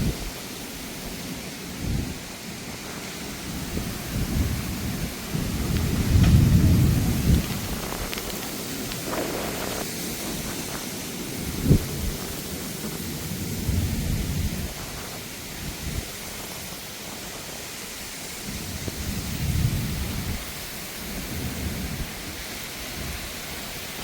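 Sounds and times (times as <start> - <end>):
rain hiss: 0.0 - 24.0
low rumbling: 3.6 - 8.4.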